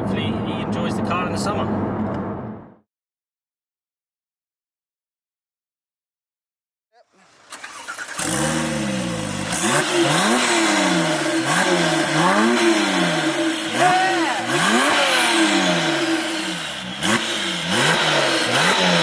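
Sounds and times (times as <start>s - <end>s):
car engine revving: 7.1s - 19.0s.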